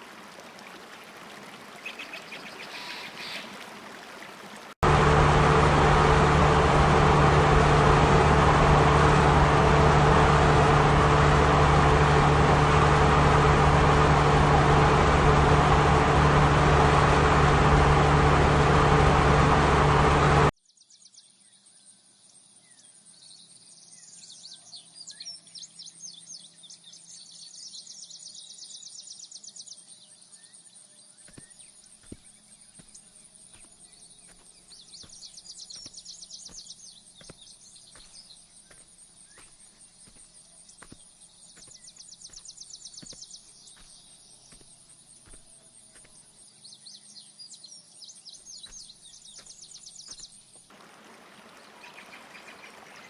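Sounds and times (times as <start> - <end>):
faint birdsong: 0.0 - 4.7, 20.7 - 53.0
vehicle engine and road noise: 3.6 - 20.5, 50.7 - 53.0.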